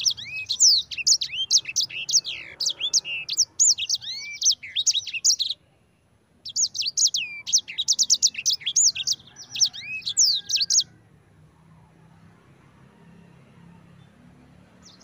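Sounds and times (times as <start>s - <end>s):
songbird chirps and trills: 0.0s - 15.0s.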